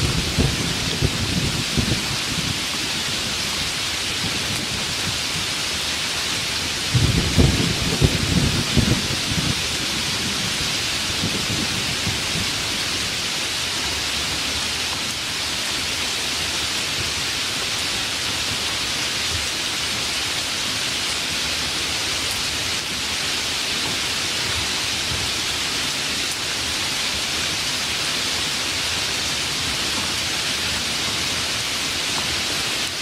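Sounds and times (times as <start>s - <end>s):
low thunder rumble: 0.0s - 5.6s, 6.8s - 13.3s
steady rain falling: 0.0s - 33.0s.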